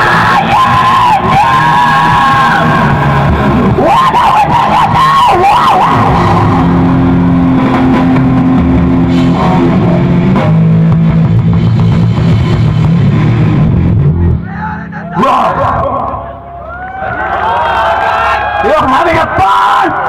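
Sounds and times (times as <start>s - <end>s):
electric guitar bending notes: 0.0s - 17.4s
live rock band: 0.0s - 19.4s.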